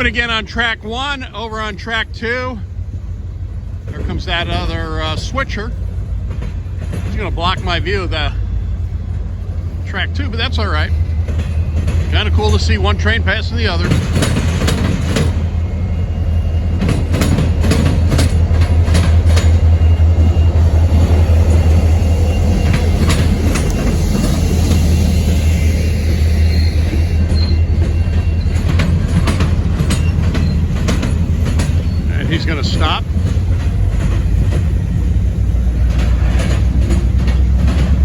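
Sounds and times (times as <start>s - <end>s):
diesel locomotive humming: 0.0s - 38.0s
train wheels clicking over rail joints: 0.0s - 38.0s.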